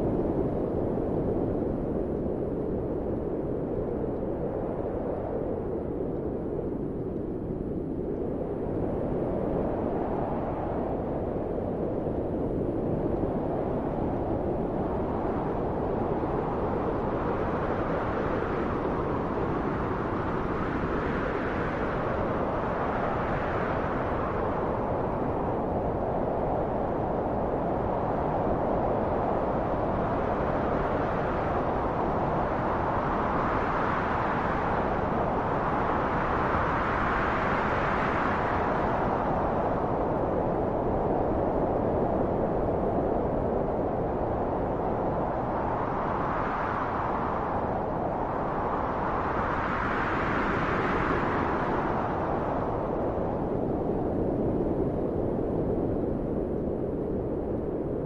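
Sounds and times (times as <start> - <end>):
low wind rushing: 0.0 - 58.0
wind blowing: 30.9 - 58.0.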